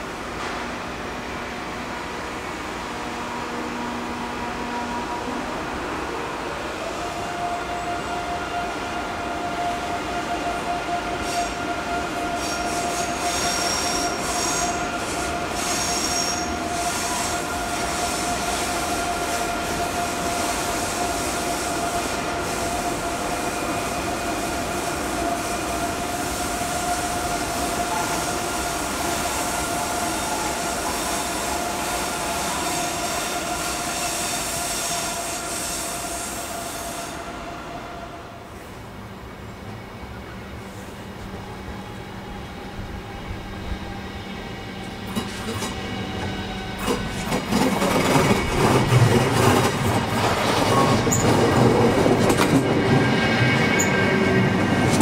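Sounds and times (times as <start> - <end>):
train rolling past: 0.0 - 55.0.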